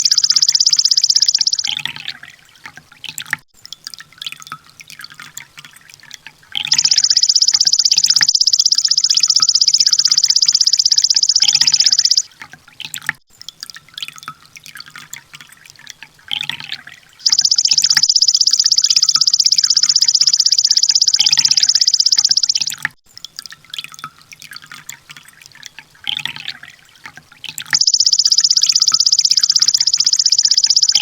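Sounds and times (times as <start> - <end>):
bird rapid high trill: 0.0 - 2.0, 6.7 - 12.3, 17.2 - 22.8, 27.8 - 31.0
bird short chirps: 0.0 - 2.1, 6.7 - 12.3, 17.2 - 22.8, 27.8 - 31.0.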